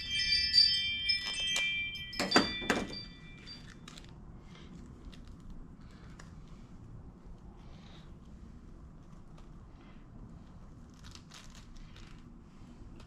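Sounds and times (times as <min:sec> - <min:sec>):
small metal parts clinking: 0:00.0 - 0:04.1.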